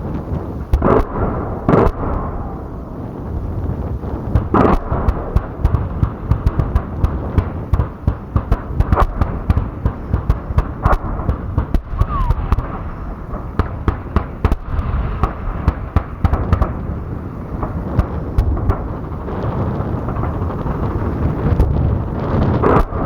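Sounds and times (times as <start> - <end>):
steady low rumble: 0.0 - 23.0
sharp cracks and pops: 0.2 - 2.7, 4.3 - 23.0.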